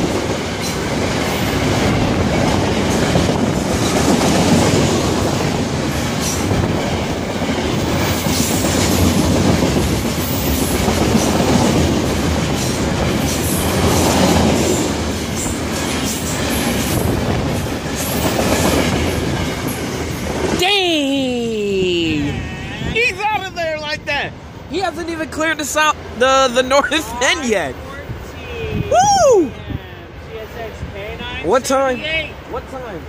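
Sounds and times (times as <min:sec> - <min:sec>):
steel wheels rushing on rail: 0:00.0 - 0:20.8.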